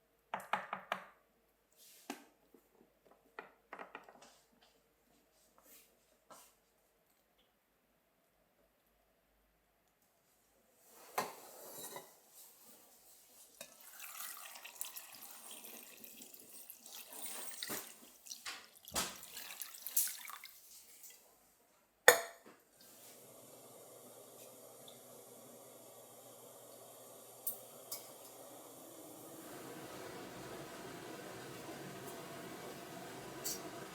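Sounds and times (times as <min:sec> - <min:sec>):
water running and splashing: 0:13.6 - 0:21.2.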